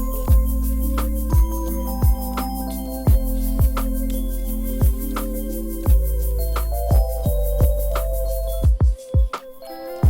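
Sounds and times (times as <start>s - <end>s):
kick drum beat: 0.0s - 2.4s, 3.1s - 4.0s, 4.8s - 5.2s, 5.9s - 8.0s, 8.6s - 9.5s
heavy sustained bass: 0.0s - 8.7s
held keyboard chords: 0.0s - 10.0s.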